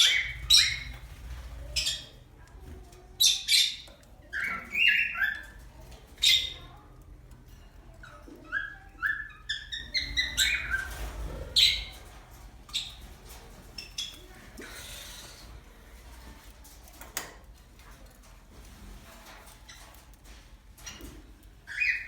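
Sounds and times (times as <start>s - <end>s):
bird chirps: 0.0s - 2.2s, 8.5s - 11.0s, 21.7s - 22.0s.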